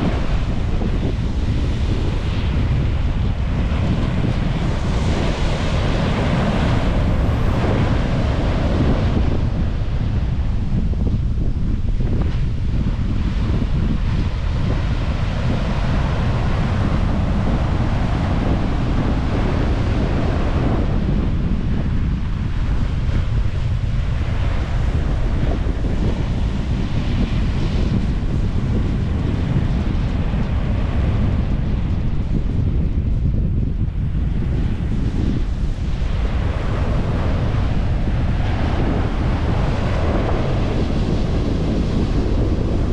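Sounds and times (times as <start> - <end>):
wave wash hissing: 0.0 - 10.6, 35.4 - 42.9
ocean surf: 0.0 - 11.1, 11.8 - 32.3, 34.1 - 42.9
wind buffeting microphone: 0.0 - 42.9.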